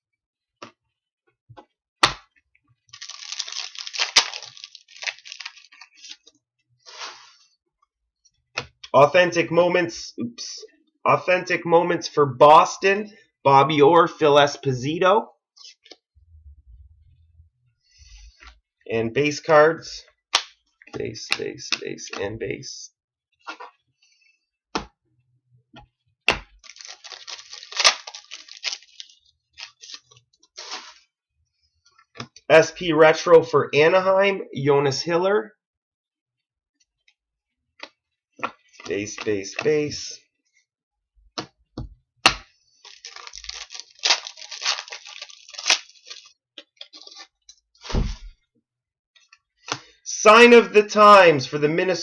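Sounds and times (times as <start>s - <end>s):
foil wrapper tearing and crinkling: 2.9s - 6.2s, 26.6s - 30.9s, 42.8s - 47.3s
wrapper snapping: 2.9s - 6.2s, 26.6s - 30.2s, 42.8s - 47.3s.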